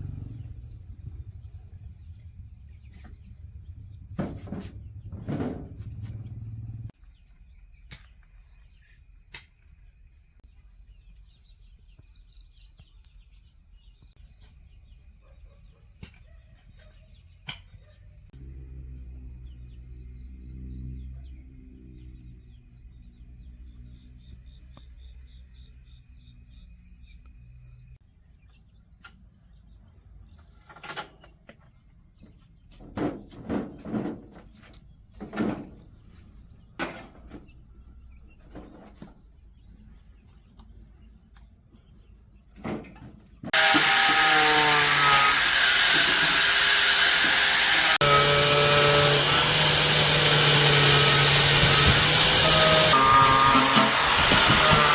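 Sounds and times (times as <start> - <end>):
insects chirring: 0.0 - 49.3
electric power tool running: 43.5 - 54.9.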